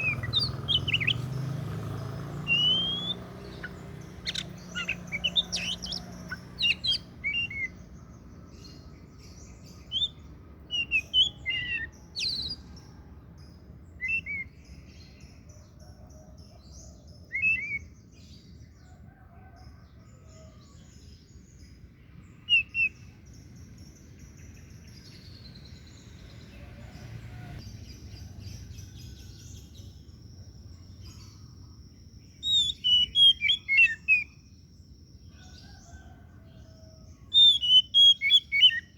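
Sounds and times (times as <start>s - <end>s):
bird singing whistled notes: 0.0s - 8.0s, 9.3s - 12.7s, 14.0s - 14.9s, 17.3s - 18.1s, 22.4s - 23.2s, 32.2s - 34.5s, 37.3s - 38.9s.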